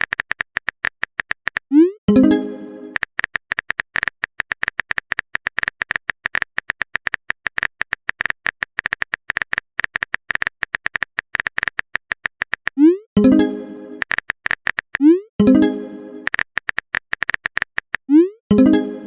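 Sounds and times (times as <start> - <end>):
rapid electronic blips: 0.0 - 13.4, 14.0 - 15.3, 16.2 - 18.4.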